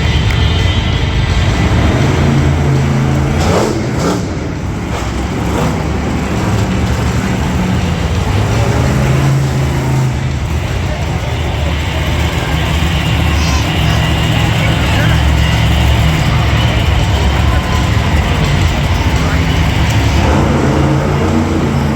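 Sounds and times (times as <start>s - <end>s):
monster truck engine revving: 0.0s - 21.9s.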